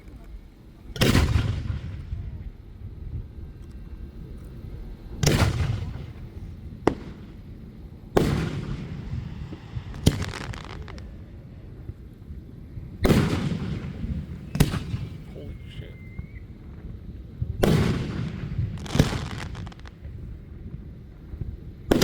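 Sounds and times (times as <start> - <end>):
fireworks booming: 0.9 - 22.0
fireworks sharp cracks: 1.0 - 2.2, 5.2 - 12.1, 13.0 - 20.9
fireworks crackle: 3.4 - 22.0.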